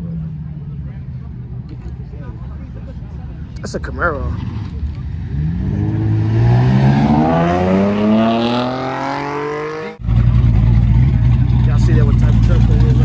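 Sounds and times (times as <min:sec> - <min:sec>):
low engine rumble: 0:00.0 - 0:09.1, 0:09.8 - 0:13.0
car accelerating hard: 0:04.0 - 0:13.0.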